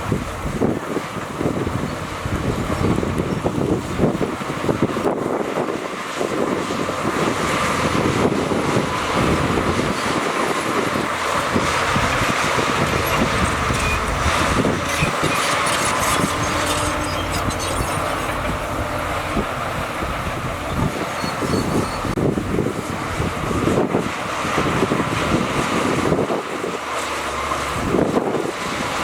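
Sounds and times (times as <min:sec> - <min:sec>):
bulldozer diesel engine: 0:00.0 - 0:29.0
knocks and clanks: 0:11.2 - 0:20.9.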